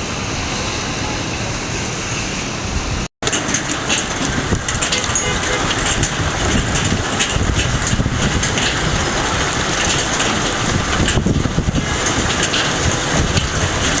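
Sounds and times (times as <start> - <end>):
heavy rain: 0.0 - 14.0
strong wind rushing: 0.0 - 14.0
constant crackling: 3.2 - 14.0.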